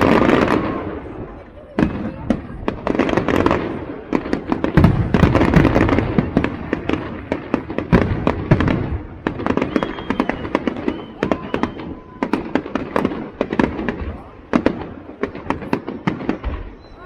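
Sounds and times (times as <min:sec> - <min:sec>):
fireworks bangs and crackles: 0:00.0 - 0:17.0
thin whistling tone: 0:09.6 - 0:12.1.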